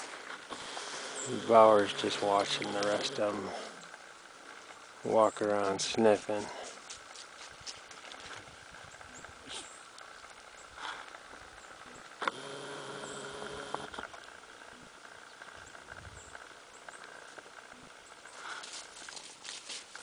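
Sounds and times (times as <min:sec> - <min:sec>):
steady hum: 0:00.0 - 0:18.4
dogs rustling and pattering: 0:05.4 - 0:08.9, 0:18.3 - 0:20.0.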